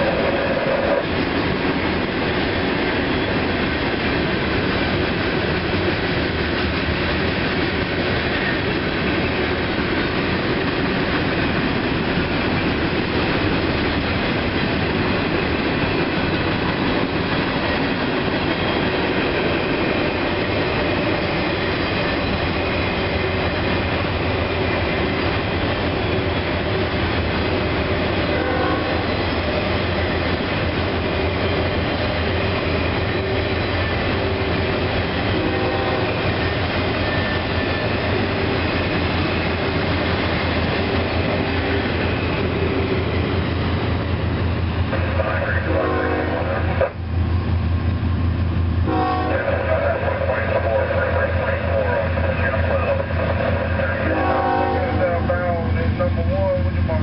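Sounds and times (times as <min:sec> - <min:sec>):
freight train cars rolling: 0:00.0 - 0:57.0.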